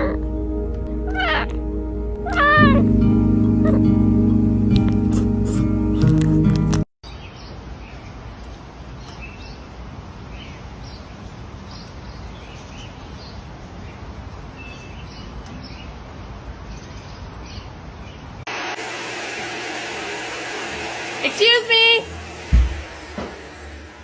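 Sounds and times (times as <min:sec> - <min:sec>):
small birds chirping: 0:07.0 - 0:18.4.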